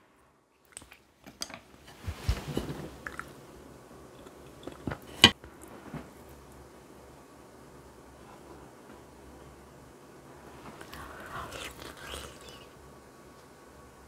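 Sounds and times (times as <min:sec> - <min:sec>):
chewing and wet mouth sounds: 0:00.6 - 0:01.1, 0:10.8 - 0:12.8.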